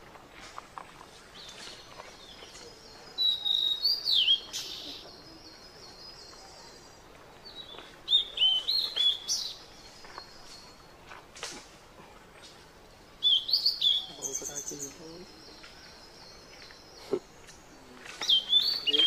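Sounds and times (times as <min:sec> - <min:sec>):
songbird whistling: 0:03.2 - 0:05.1, 0:05.9 - 0:10.2, 0:13.2 - 0:15.0, 0:18.1 - 0:19.0.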